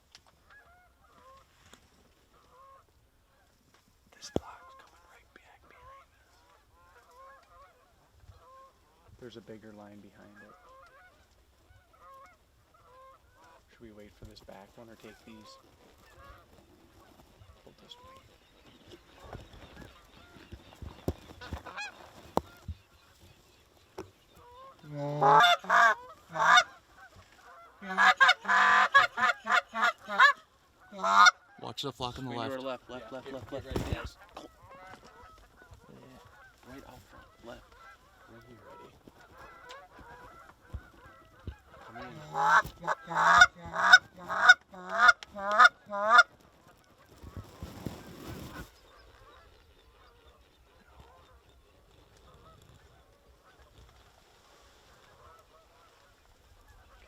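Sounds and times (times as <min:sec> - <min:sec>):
goose honking: 0:00.5 - 0:01.4, 0:02.3 - 0:03.4, 0:04.2 - 0:14.1, 0:14.8 - 0:16.4, 0:21.4 - 0:22.6, 0:24.4 - 0:31.7, 0:32.4 - 0:46.3.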